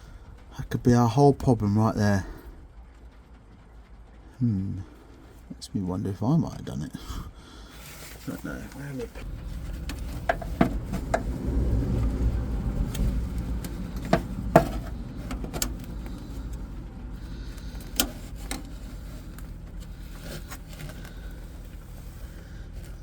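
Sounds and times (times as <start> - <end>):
low steady rumble: 0.0 - 23.0
hands handling parts clicking: 12.8 - 23.0.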